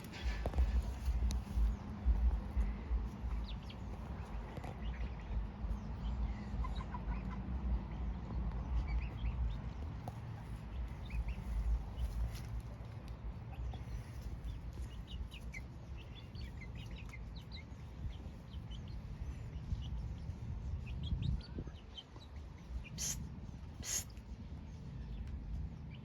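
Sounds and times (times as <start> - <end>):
low rumble: 0.0 - 17.1
chickens clucking and chirping: 0.0 - 26.0
short scratchy rasps: 23.0 - 23.2, 23.8 - 24.2.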